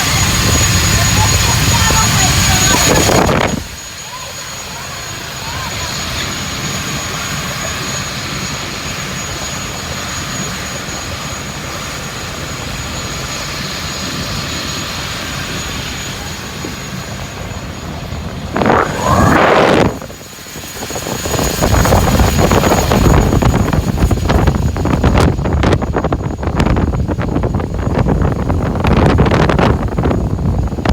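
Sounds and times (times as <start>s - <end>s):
engine running with high whine: 0.0s - 30.9s
loud burst rising in pitch: 18.2s - 20.4s.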